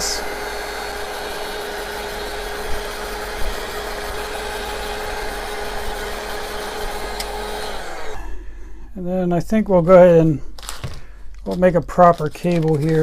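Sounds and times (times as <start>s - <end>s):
heat gun blowing with whine: 0.0s - 9.0s.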